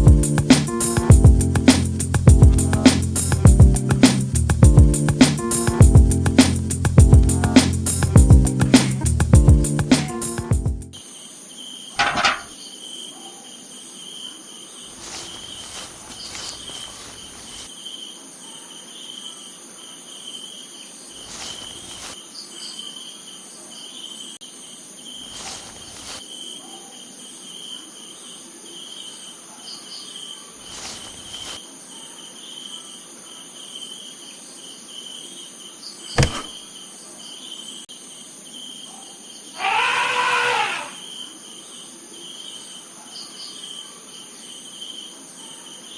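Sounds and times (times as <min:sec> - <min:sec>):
crickets chirping: 0:00.0 - 0:45.9
sharp click: 0:36.2 - 0:36.6
loud pitched call: 0:39.6 - 0:41.1.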